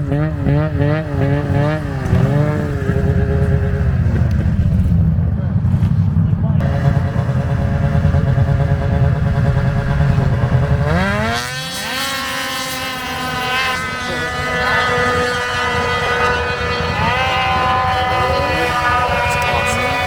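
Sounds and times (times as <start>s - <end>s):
small engine revving hard: 6.6s - 20.0s.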